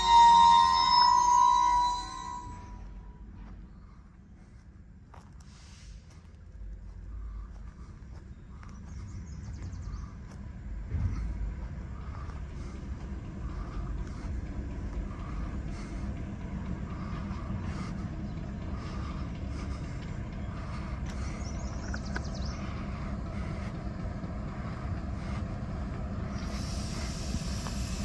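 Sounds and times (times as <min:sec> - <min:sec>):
freight train wheels rumbling: 0:00.0 - 0:28.0.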